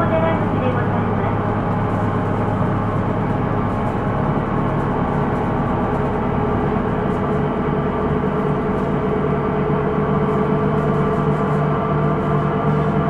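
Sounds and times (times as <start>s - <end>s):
bus drivetrain drone: 0.0s - 13.0s.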